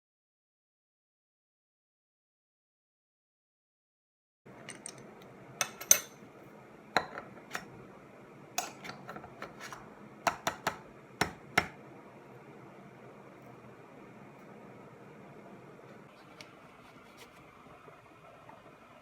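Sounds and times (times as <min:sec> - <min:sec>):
hard objects clicking and clinking: 0:04.6 - 0:06.2.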